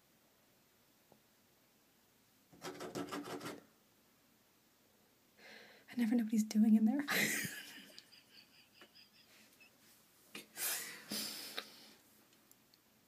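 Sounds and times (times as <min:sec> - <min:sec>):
person breathing out: 0:05.4 - 0:05.9, 0:10.6 - 0:12.0.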